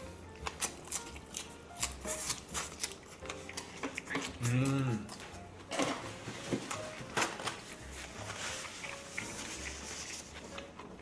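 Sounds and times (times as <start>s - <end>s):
wet chewing mouth sounds: 0.3s - 5.3s, 8.0s - 11.0s.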